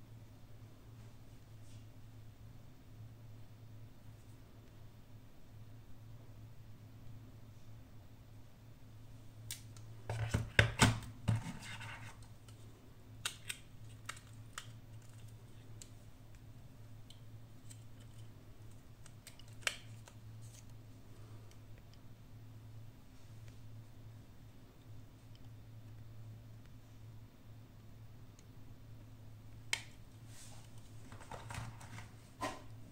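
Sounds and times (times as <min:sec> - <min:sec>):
smartphone box scraping and clicking: 0:11.3 - 0:12.2.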